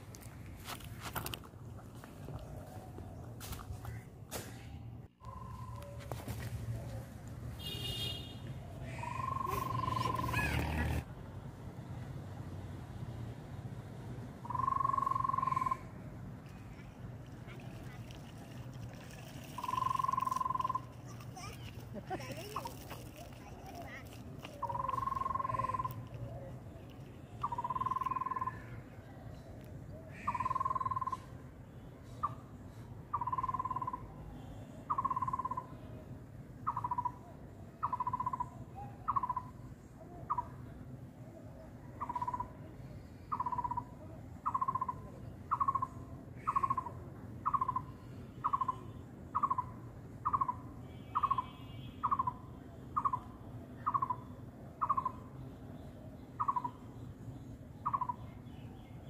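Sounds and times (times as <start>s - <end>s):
bird whistling calls: 8.9s - 11.0s.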